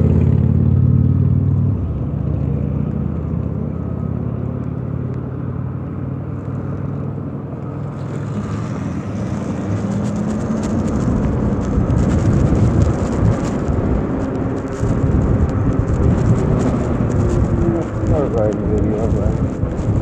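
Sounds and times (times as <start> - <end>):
gusty wind on microphone: 6.3 - 20.0.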